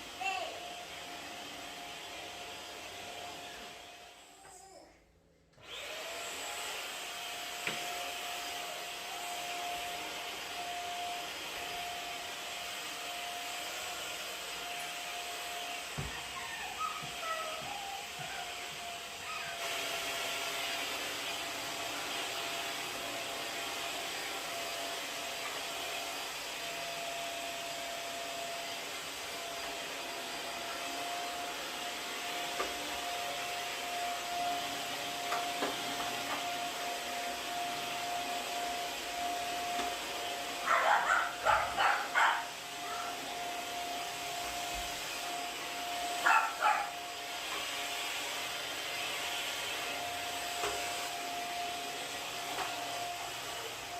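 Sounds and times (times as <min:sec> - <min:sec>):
vacuum cleaner whining: 0:00.0 - 0:04.8, 0:05.5 - 0:53.9
dog barking: 0:40.6 - 0:43.2, 0:46.2 - 0:47.0.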